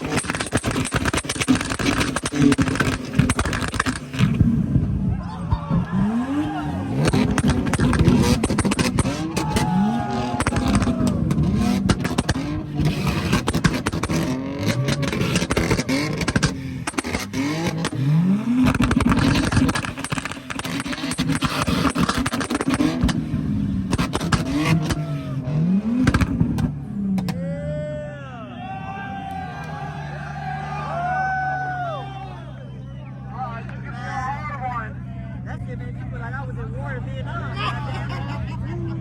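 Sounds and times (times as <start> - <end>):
exhaust crackling and popping: 0.0 - 27.4
car engine revving: 0.0 - 27.8.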